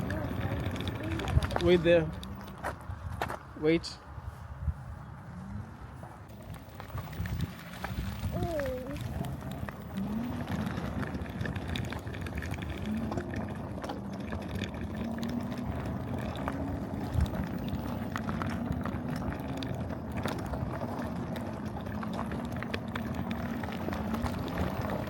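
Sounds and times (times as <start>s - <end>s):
mini bike engine running: 0.0s - 2.8s, 6.3s - 25.0s
wind rumble on microphone: 0.0s - 25.0s.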